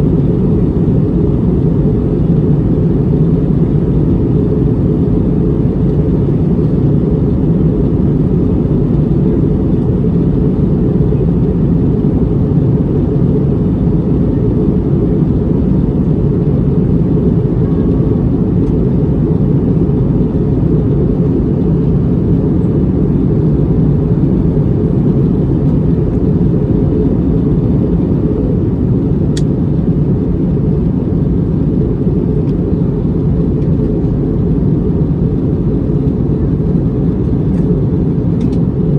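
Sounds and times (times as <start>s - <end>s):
aircraft cabin engine roar: 0.0s - 38.9s.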